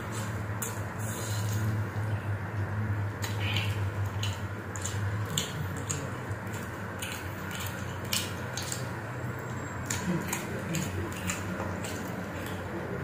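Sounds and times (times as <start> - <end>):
steady low hum: 0.0 - 13.0
chewing and lip-smacking: 3.1 - 13.0.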